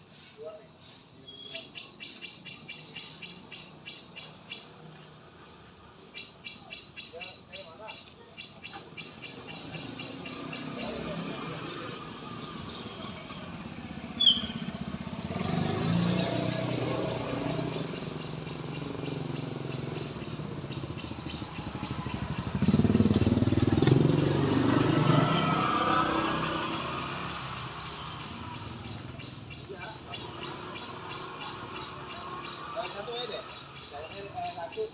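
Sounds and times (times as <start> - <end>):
bird chirp: 0.0 - 34.9
motorcycle engines passing: 0.2 - 34.9.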